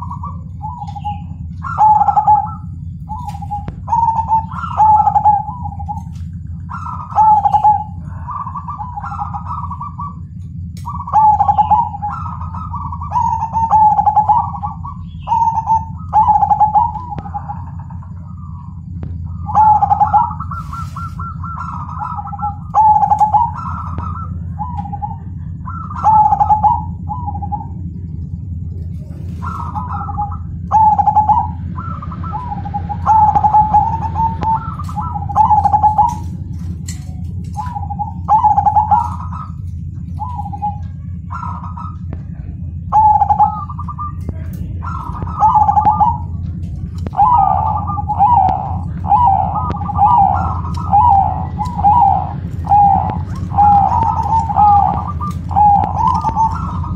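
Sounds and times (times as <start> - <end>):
dove cooing: 0.0 - 56.9
steady low hum: 0.0 - 56.9.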